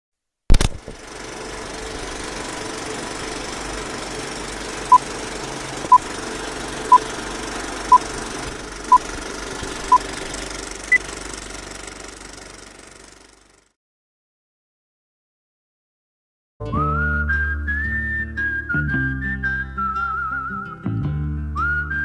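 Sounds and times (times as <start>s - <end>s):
film projector whirring: 0.5s - 13.7s.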